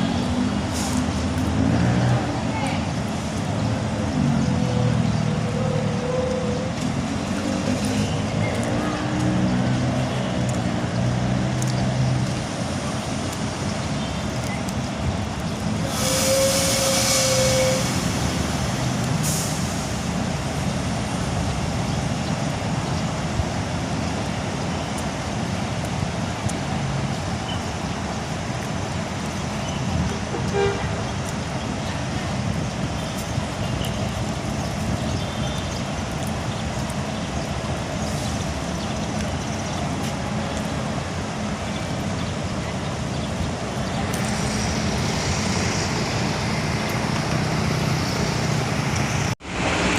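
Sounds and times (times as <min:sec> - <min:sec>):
diesel bus engines running: 0:00.0 - 0:49.9
air brake hiss: 0:15.9 - 0:18.3, 0:19.2 - 0:20.0.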